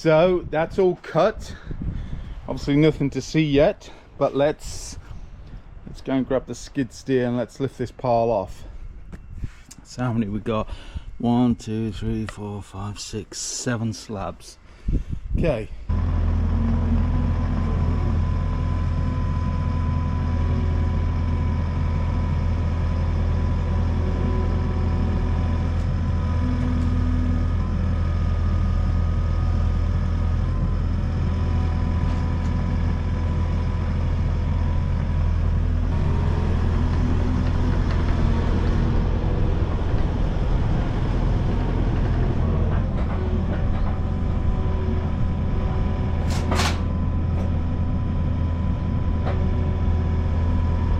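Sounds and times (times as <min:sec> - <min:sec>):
skid steer engine running: 0:15.9 - 0:50.9.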